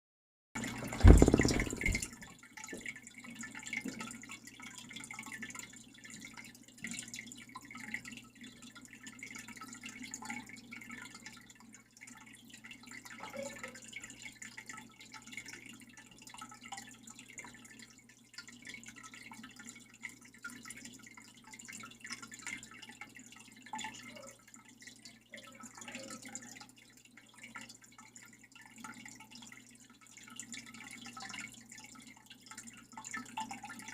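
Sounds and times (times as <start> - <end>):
water trickling and dripping: 0.6 - 33.9.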